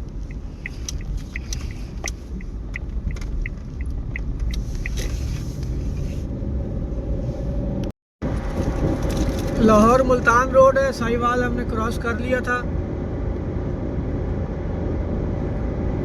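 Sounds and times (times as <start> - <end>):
turn signal ticking: 0.0 - 5.8
road rumble inside car: 0.0 - 16.0.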